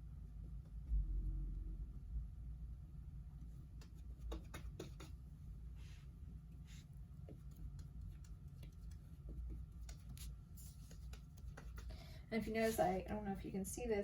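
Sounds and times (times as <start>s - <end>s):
low steady hum: 0.0s - 14.0s
paintbrush tapping on canvas: 3.8s - 5.2s.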